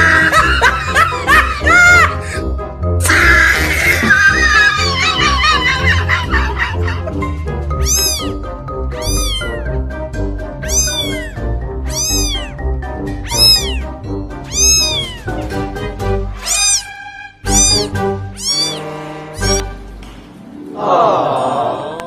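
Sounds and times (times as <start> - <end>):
background music: 0.0 - 22.0
kitten meowing: 7.8 - 8.4, 9.0 - 9.6, 10.6 - 12.6, 13.2 - 13.9, 14.5 - 15.3, 16.4 - 19.7.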